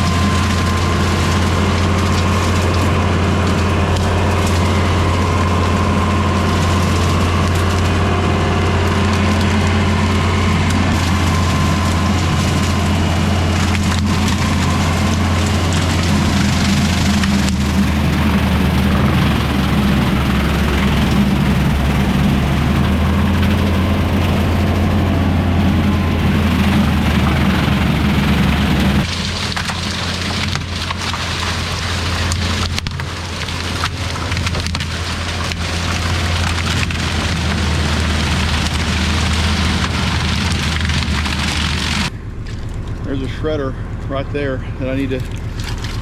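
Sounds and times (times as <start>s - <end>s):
rotary cutter shredding bamboo: 0.0s - 43.3s
tractor engine drone: 0.0s - 46.0s
sharp snaps and cracks: 29.0s - 43.1s.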